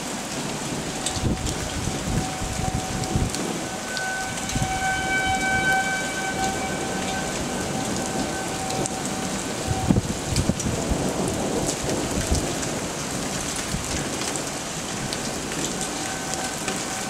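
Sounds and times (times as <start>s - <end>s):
rain hiss: 0.0s - 17.0s
warning siren steady note: 0.7s - 11.8s, 15.4s - 17.0s.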